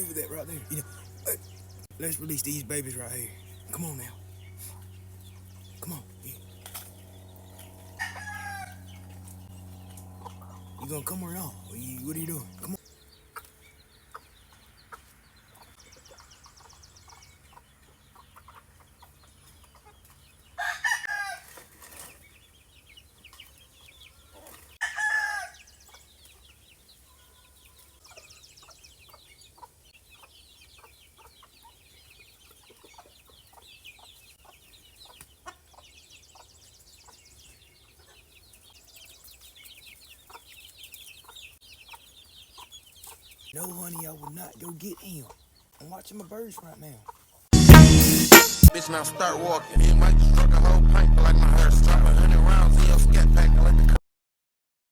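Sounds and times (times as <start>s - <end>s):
roosters crowing: 0.0s - 12.8s, 20.4s - 22.1s, 24.2s - 26.1s.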